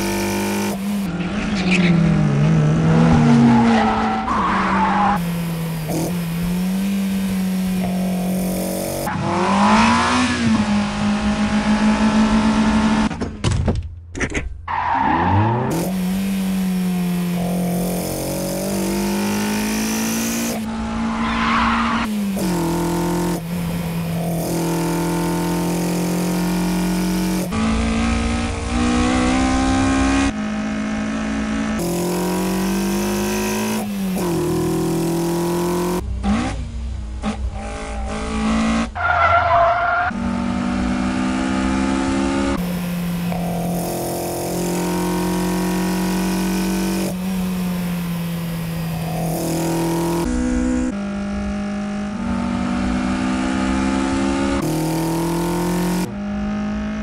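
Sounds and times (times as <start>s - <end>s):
sports car engines revving: 0.0s - 13.1s, 15.1s - 57.0s
tires squealing: 0.9s - 5.2s, 14.7s - 15.9s, 21.0s - 22.5s, 37.5s - 40.2s.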